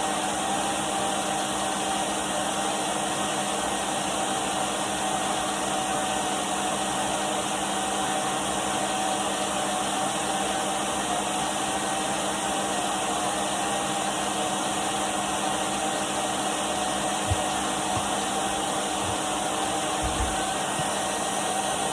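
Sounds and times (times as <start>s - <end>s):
vacuum cleaner motor whine: 0.0s - 21.9s
faint low knocks: 17.3s - 21.0s.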